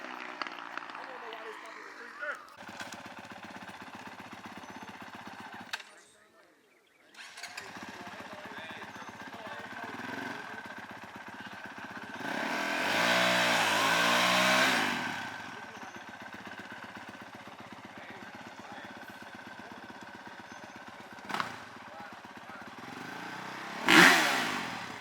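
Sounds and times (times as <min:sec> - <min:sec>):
distant engines droning: 0:00.0 - 0:25.0
small racing engine passing close: 0:11.6 - 0:15.6, 0:22.8 - 0:25.0.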